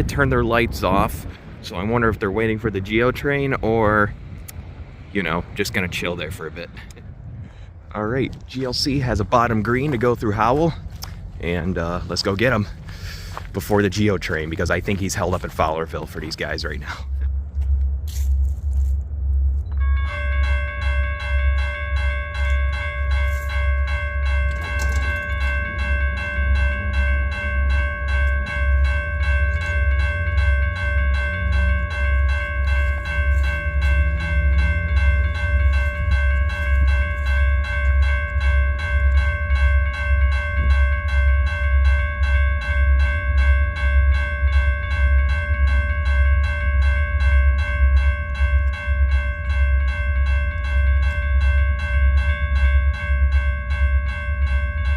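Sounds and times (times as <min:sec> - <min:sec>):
train rumbling past: 0:00.0 - 0:54.9
high ringing tone: 0:07.9 - 0:54.9.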